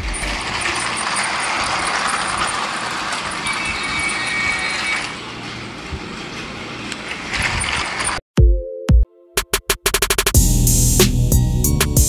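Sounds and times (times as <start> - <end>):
toy train motors whirring: 0.0 - 5.2
thin high whine: 0.0 - 6.0.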